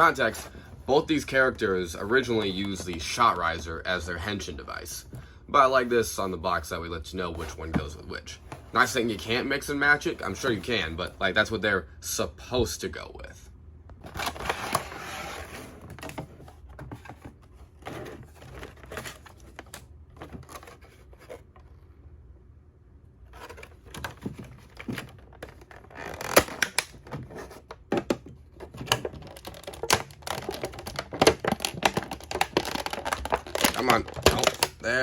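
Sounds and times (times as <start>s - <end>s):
plastic packaging crinkling: 28.6s - 35.0s.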